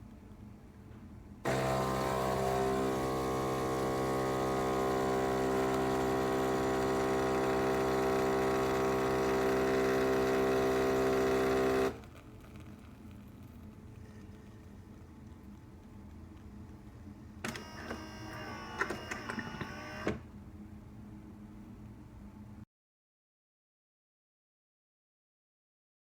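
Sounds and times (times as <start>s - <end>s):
espresso machine pump buzzing: 1.5s - 15.0s, 17.4s - 20.2s.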